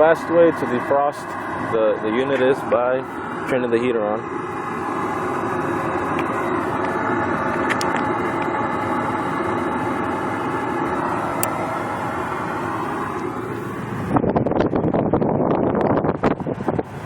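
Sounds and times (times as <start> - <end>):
hvac unit humming: 0.0 - 17.0
wind gusts on microphone: 4.6 - 17.0.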